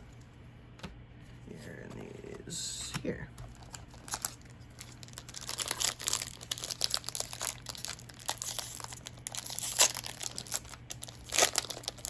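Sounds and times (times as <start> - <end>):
foil wrapper crinkling and tearing: 3.4 - 12.0.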